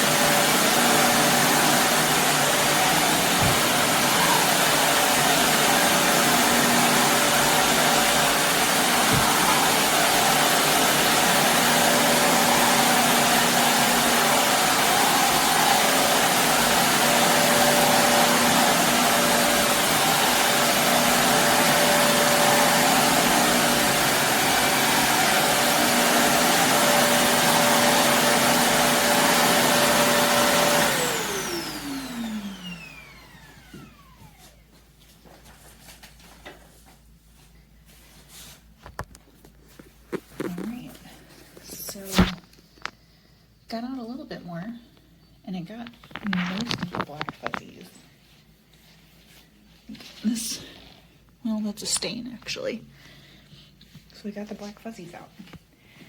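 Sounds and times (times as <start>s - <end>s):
motor winding down whine: 0.0s - 34.4s
vacuum cleaner running on carpet: 0.0s - 34.6s.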